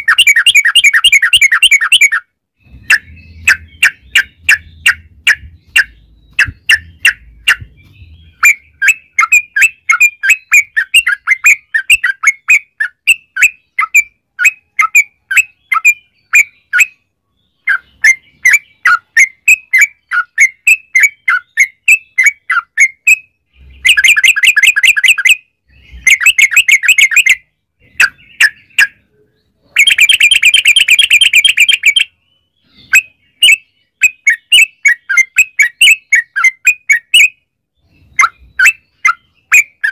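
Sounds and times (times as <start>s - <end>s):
bird singing bubbly notes: 0.0s - 17.0s, 29.8s - 39.9s.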